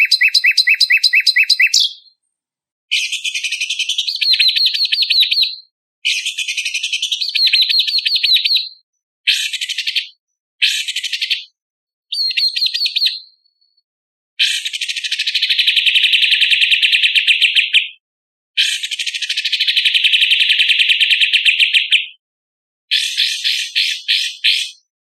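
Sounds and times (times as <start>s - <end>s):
songbird singing harsh trills: 0.0s - 2.2s, 2.9s - 11.4s, 12.1s - 13.4s, 22.9s - 24.9s.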